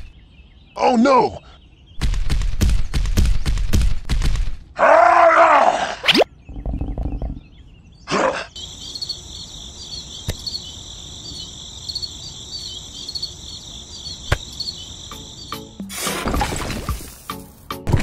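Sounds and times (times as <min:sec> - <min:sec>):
crickets chirping: 0:08.6 - 0:17.5.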